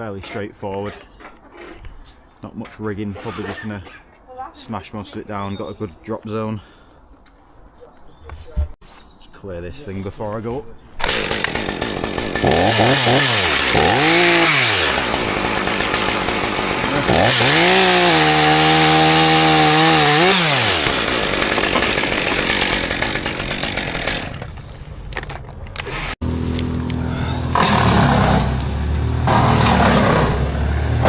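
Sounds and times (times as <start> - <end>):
chainsaw revving: 11.0 - 24.5, 25.9 - 31.0.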